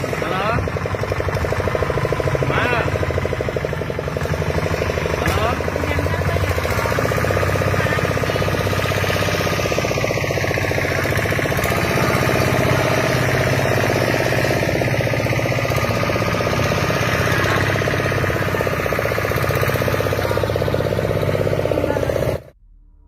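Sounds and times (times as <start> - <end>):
engine chugging steadily: 0.0 - 22.6.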